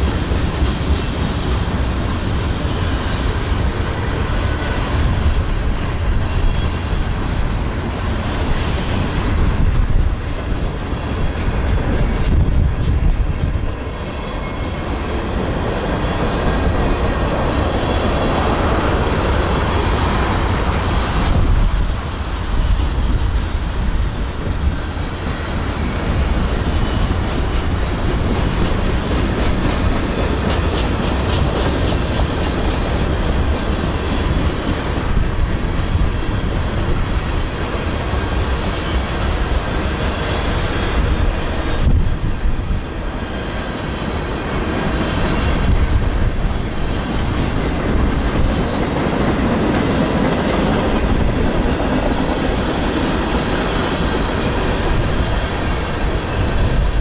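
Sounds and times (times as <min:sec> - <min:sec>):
freight train rumbling past: 0:00.0 - 0:57.0
wheels clacking over rail joints: 0:22.6 - 0:40.3.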